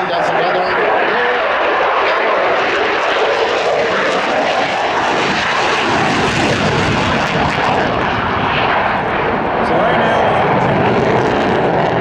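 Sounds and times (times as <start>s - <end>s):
fighter jet passing: 0.0s - 12.0s.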